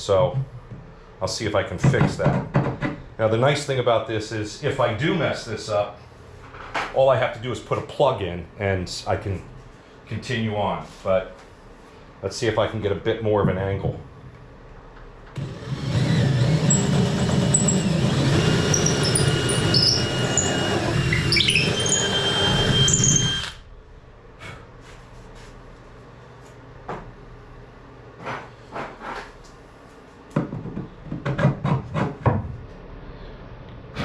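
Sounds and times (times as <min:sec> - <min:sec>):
power drill boring through wood: 0:15.4 - 0:23.6.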